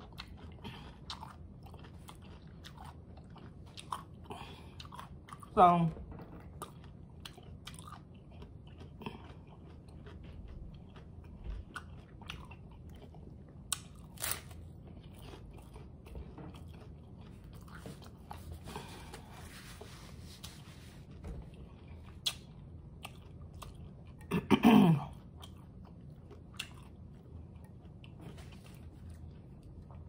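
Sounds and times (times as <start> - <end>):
crunchy taco chewing: 0.0 - 5.6, 6.3 - 19.6, 25.2 - 30.0.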